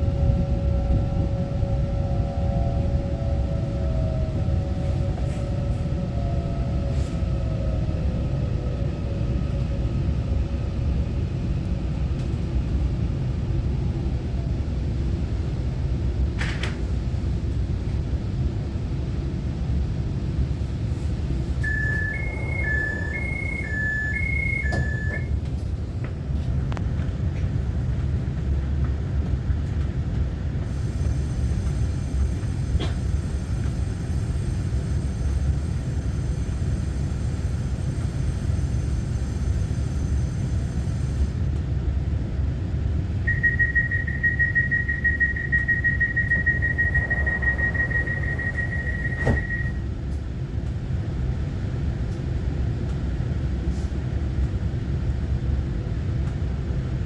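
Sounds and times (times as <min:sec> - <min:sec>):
train equipment rumble: 0:00.0 - 0:14.0, 0:20.1 - 0:56.5
steady electronic beep: 0:21.6 - 0:25.3, 0:43.3 - 0:49.8
two-tone alternating chime: 0:21.6 - 0:25.3.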